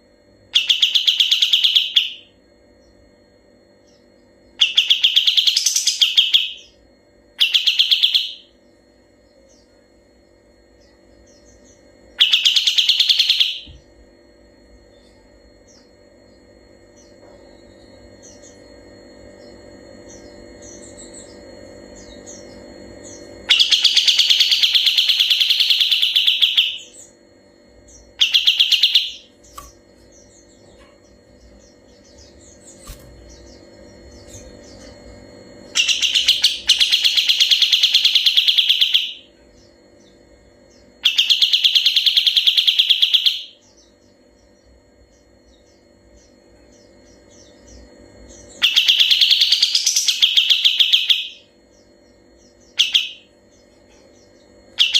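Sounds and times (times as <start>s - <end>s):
songbird rolling trill: 27.9s - 39.2s.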